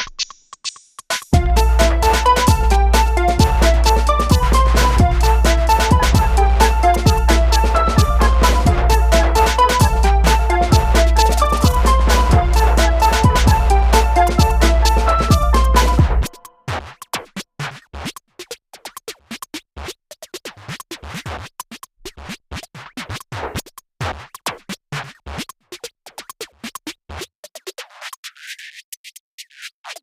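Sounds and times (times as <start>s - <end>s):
clicky beats: 1.3s - 16.5s
electronic music: 1.4s - 16.6s.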